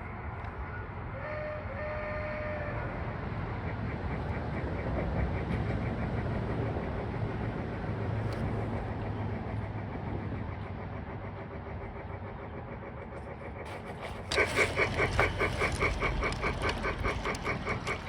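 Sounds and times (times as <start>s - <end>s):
wheels clicking on track: 0.0s - 18.0s
model train motor hum: 5.4s - 18.0s.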